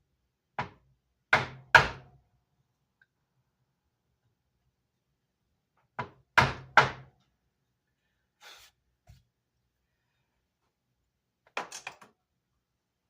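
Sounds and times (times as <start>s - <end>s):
faint scrape: 8.4s - 8.8s.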